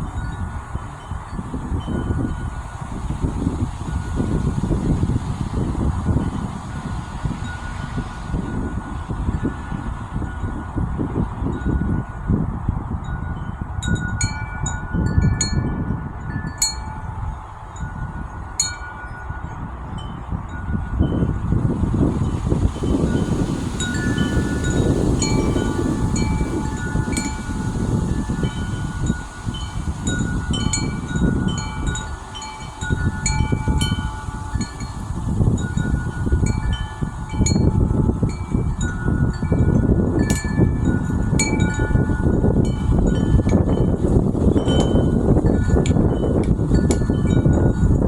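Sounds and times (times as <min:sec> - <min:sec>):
wind rumbling on microphone: 0:00.0 - 0:48.0
wind chime ringing: 0:13.1 - 0:21.3, 0:22.8 - 0:48.0.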